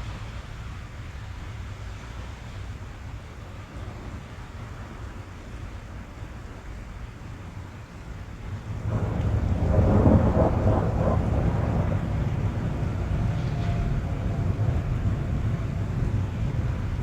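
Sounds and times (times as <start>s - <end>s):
rain drumming on car roof: 6.7s - 17.0s
thunder rumbling: 8.2s - 17.0s.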